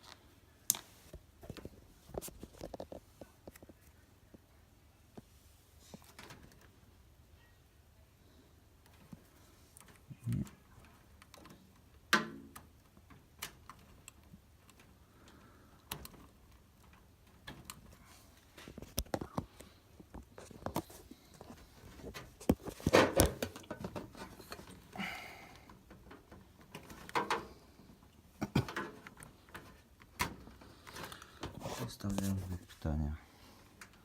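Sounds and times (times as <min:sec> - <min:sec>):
plastic parts clicking and knocking: 0:09.8 - 0:18.0, 0:18.6 - 0:32.2.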